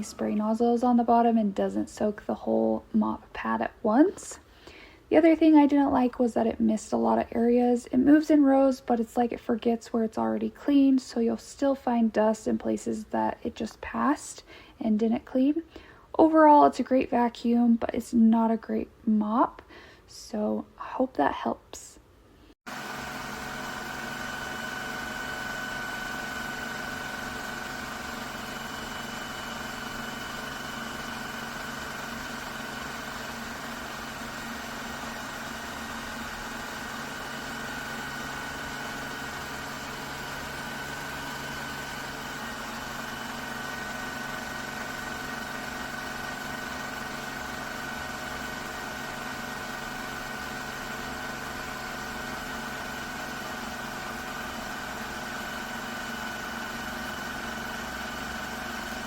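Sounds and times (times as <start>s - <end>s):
motor hum: 22.7s - 59.0s
robot vacuum suction fan whine: 22.7s - 59.0s.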